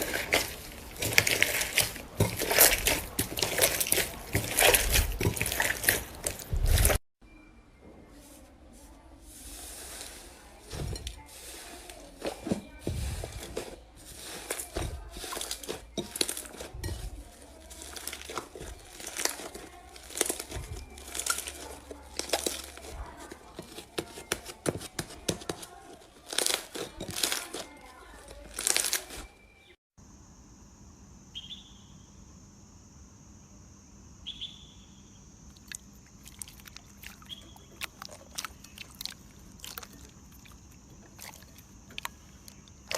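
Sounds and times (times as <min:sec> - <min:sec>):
slime crackling and crunching: 0:00.0 - 0:07.0, 0:09.4 - 0:29.4, 0:35.6 - 0:42.9.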